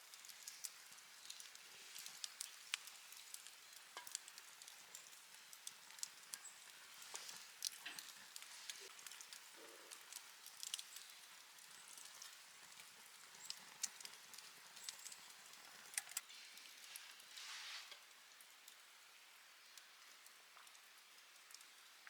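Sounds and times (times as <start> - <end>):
campfire crackling: 0.0 - 22.0
low hiss: 0.0 - 22.0.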